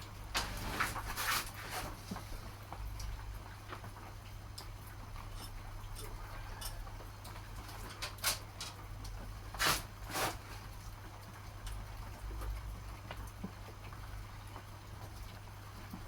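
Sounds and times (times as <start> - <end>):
scraping rustles: 0.4 - 2.4, 9.6 - 10.6.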